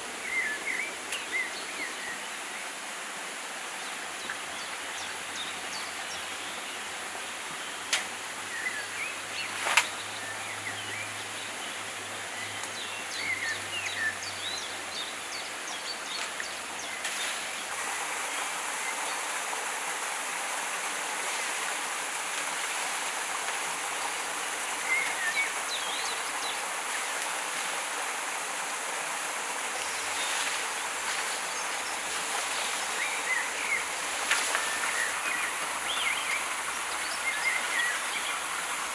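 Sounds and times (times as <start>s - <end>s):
stream water flowing: 0.0s - 38.9s
sharp snaps: 7.9s - 8.1s.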